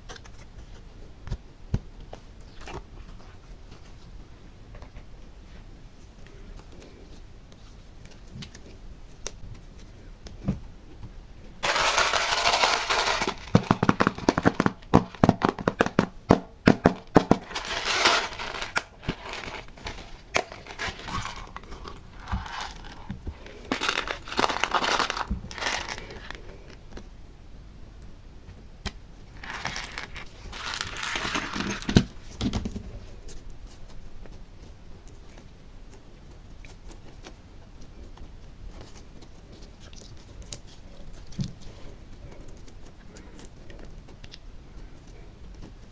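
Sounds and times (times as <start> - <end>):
slime crinkling and crackling: 11.6 - 16.2, 16.8 - 26.8, 29.3 - 32.5.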